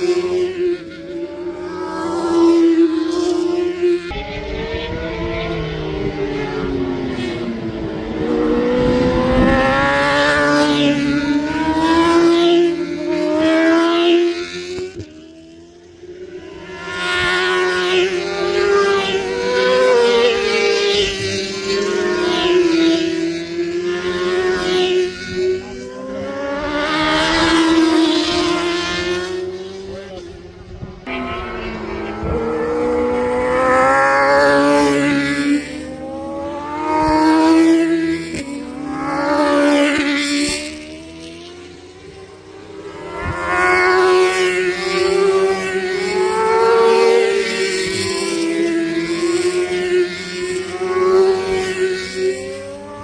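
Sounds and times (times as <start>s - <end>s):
racing motorcycles passing by: 0.0s - 53.0s.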